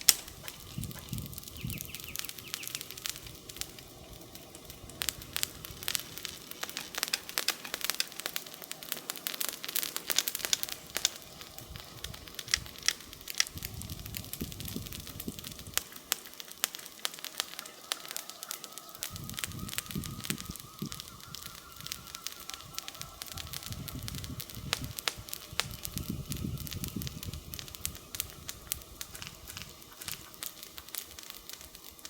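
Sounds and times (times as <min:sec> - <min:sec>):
campfire crackling and popping: 0:00.0 - 0:32.0.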